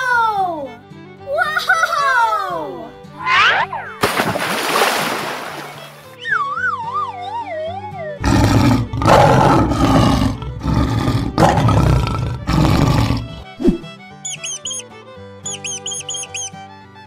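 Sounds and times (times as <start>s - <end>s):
background music: 0.0s - 17.0s
lion roaring: 8.2s - 13.5s.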